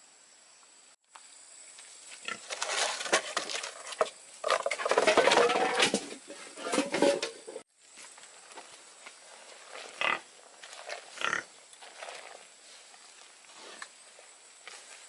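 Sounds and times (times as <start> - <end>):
pigs chewing at feed: 9.2 - 15.0.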